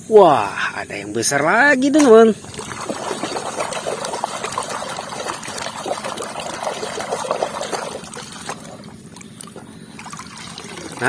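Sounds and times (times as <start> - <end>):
water pouring over plastic toy: 2.4 - 8.8, 10.0 - 11.0.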